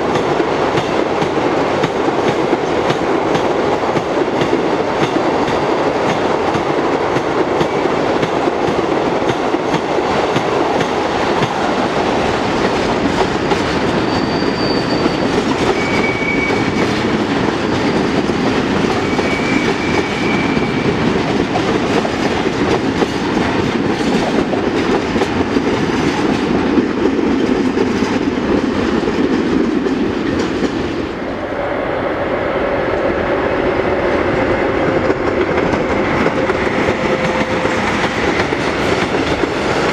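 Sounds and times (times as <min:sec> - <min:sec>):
freight train wagons rolling: 0:10.8 - 0:30.8, 0:34.1 - 0:39.9
high wheel squeals: 0:13.4 - 0:16.9, 0:19.0 - 0:20.9.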